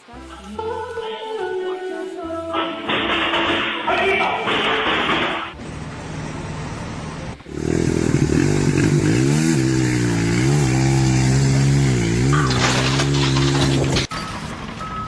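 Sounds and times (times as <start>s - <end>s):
music: 0.0s - 5.6s
engine starting and running: 4.6s - 15.0s.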